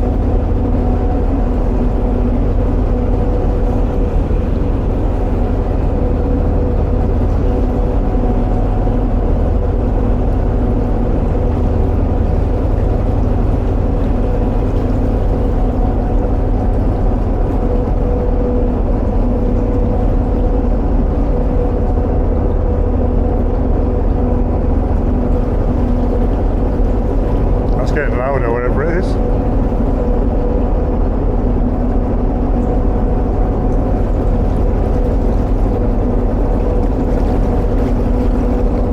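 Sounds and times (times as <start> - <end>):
boat engine rumbling: 0.0 - 38.9.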